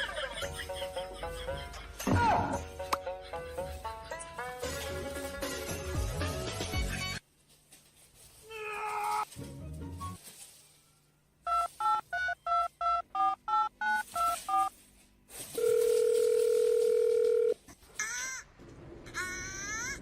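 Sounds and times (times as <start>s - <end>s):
steady telephone tone: 15.6s - 17.6s.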